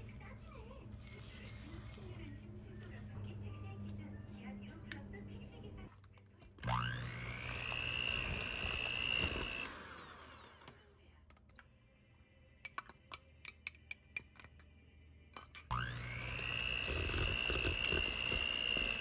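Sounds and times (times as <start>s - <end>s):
kitchen appliance motor whine: 6.5s - 10.9s, 15.7s - 19.0s.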